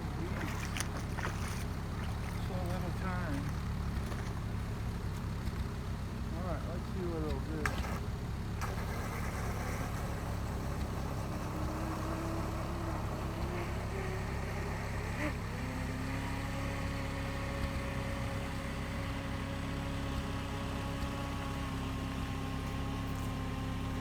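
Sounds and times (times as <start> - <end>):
low background rumble: 0.0 - 8.6
model boat motor whine: 0.0 - 24.0.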